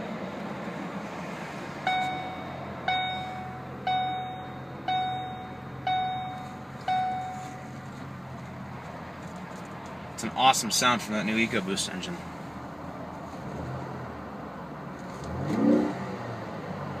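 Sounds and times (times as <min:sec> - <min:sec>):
car engine idling: 0:01.7 - 0:13.0
dashboard warning chime: 0:01.8 - 0:08.4.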